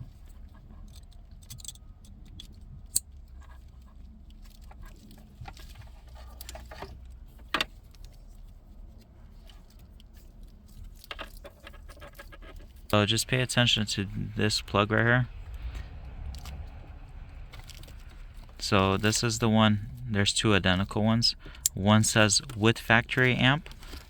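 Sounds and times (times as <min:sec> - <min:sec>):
low steady hum: 0:00.0 - 0:24.0
plastic connectors clicking and rattling: 0:00.5 - 0:03.7.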